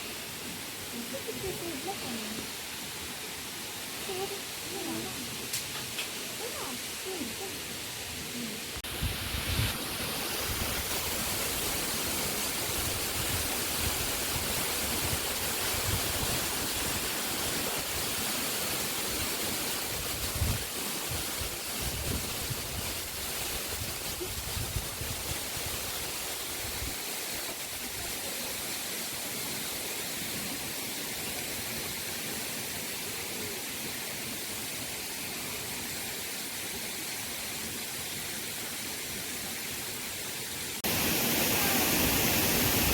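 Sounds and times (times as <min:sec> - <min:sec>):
waterfall rushing: 0:00.0 - 0:42.9.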